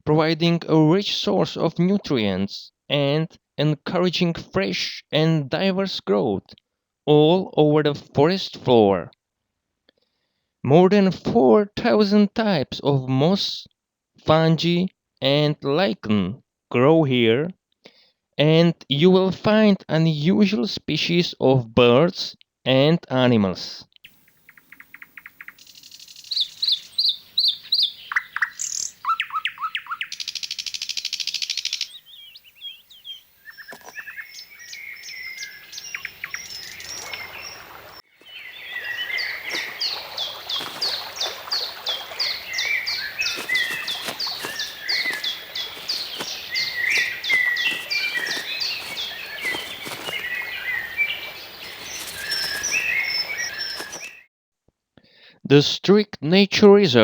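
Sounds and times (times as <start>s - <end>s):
songbirds singing and calling: 24.0s - 54.3s.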